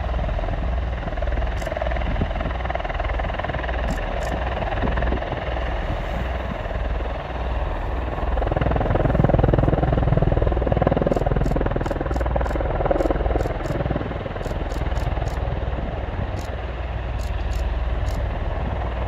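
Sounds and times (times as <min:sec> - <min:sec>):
helicopter rotor beating: 0:00.0 - 0:19.0.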